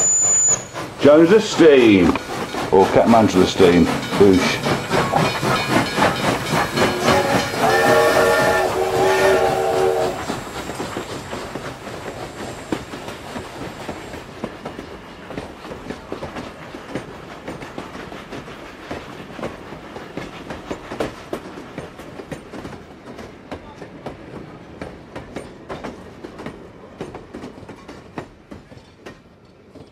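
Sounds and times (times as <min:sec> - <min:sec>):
steam whistle blowing: 0:00.0 - 0:00.8, 0:06.9 - 0:10.5
steam engine chuffing: 0:00.6 - 0:24.2.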